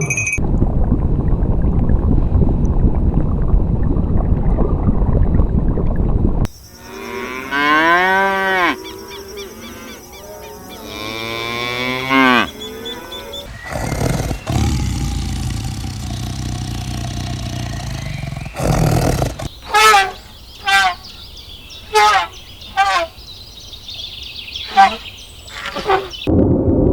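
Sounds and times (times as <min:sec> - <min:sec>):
cattle mooing: 0:13.5 - 0:19.5
high-pitched animal call: 0:13.5 - 0:20.0.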